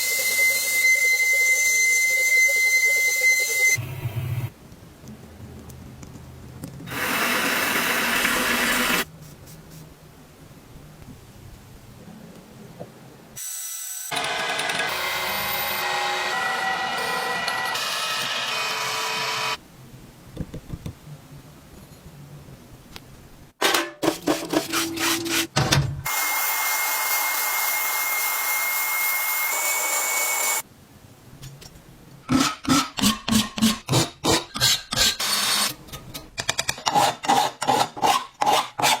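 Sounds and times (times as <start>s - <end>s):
power tool whirring: 6.9s - 9.0s.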